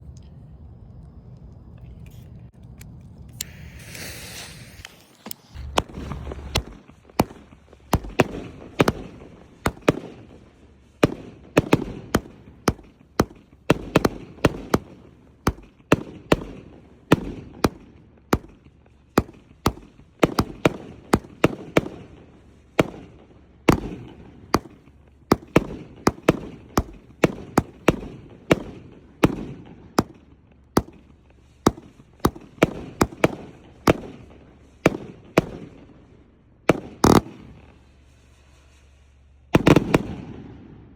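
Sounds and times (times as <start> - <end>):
fireworks fuse hissing: 2.1 - 15.8, 23.7 - 29.2, 31.0 - 35.0, 36.9 - 40.0
firework bangs: 3.4 - 40.9.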